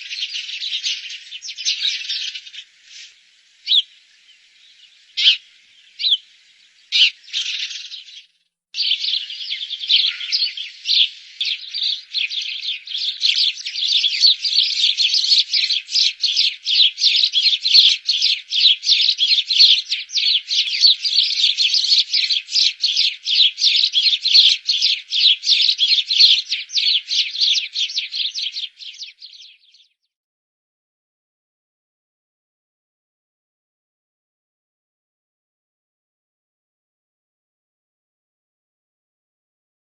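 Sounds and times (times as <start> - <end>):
sparrows chirping: 0.0 - 30.1.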